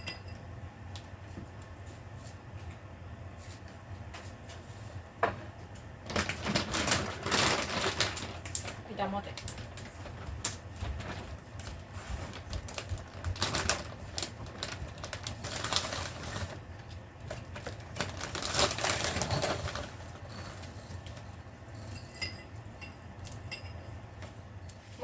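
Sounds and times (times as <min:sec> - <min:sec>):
rustling bursts: 0:06.0 - 0:16.7
dog claws clicking and scuffling: 0:06.1 - 0:16.6.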